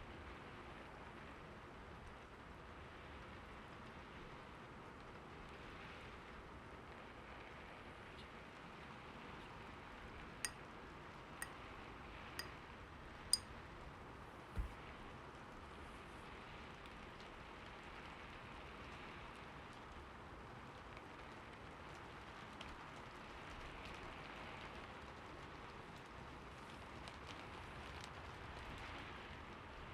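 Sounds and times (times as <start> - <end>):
dull low thump: 14.6 - 14.8.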